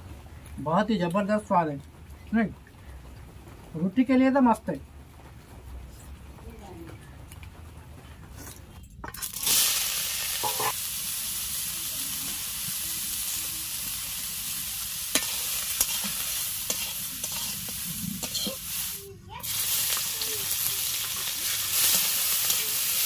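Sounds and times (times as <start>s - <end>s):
food sizzling in hot oil: 9.2s - 23.0s
metal spatula stirring: 10.4s - 10.8s, 15.1s - 18.8s.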